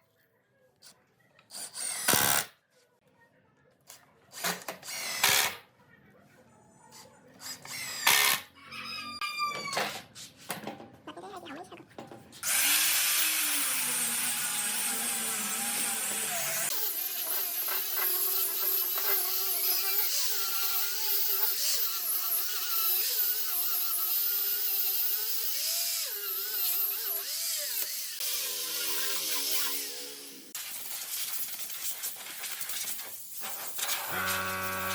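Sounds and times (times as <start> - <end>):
power tool whining: 12.4 - 30.6, 33.8 - 34.9.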